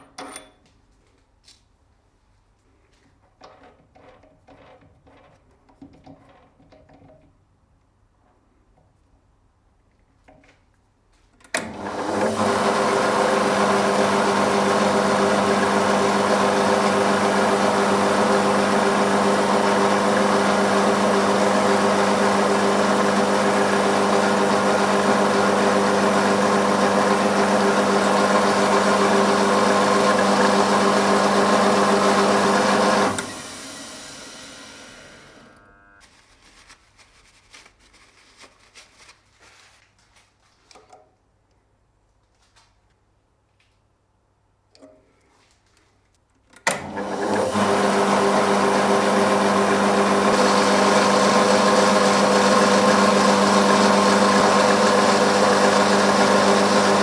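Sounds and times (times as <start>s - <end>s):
electric motor running: 12.1s - 36.0s, 46.9s - 57.0s.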